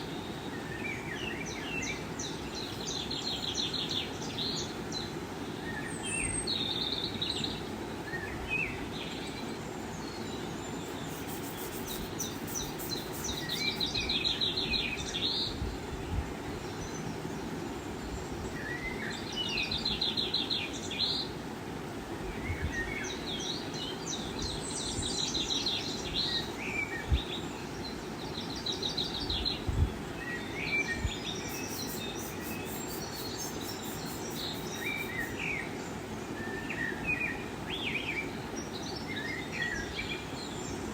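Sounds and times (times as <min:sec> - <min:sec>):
steady background hiss: 0:00.0 - 0:40.9
birds chirping and trilling: 0:10.6 - 0:14.4, 0:31.2 - 0:35.6.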